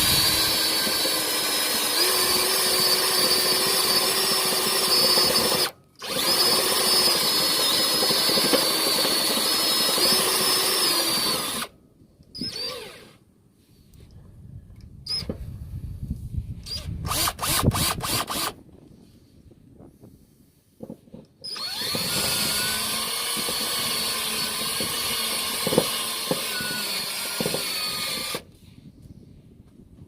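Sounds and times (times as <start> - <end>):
power drill boring metal: 0.0 - 11.7, 12.4 - 13.2, 16.7 - 18.6, 21.4 - 28.5.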